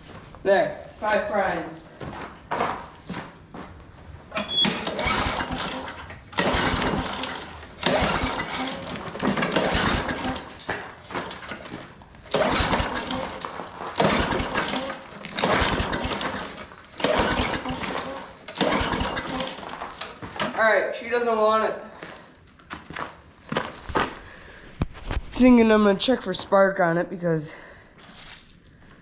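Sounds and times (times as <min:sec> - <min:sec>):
lawn mower engine pull-start: 0:04.3 - 0:20.6.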